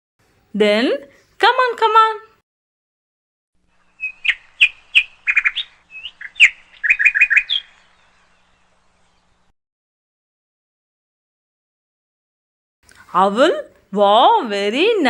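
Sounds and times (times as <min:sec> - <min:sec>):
bird chirping: 0:03.7 - 0:09.5.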